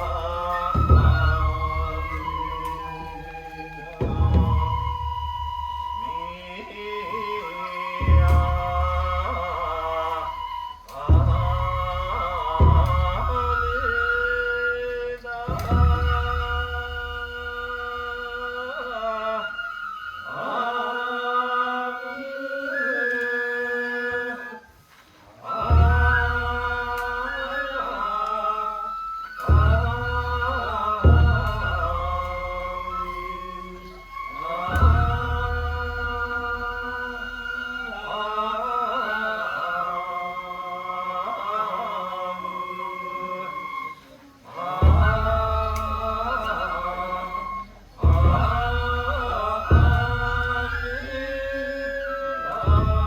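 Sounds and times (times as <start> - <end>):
low drum beat: 0.0 - 6.2, 8.0 - 17.8, 29.3 - 37.3, 44.8 - 51.7, 52.4 - 53.0
voices chanting in long notes: 0.0 - 53.0.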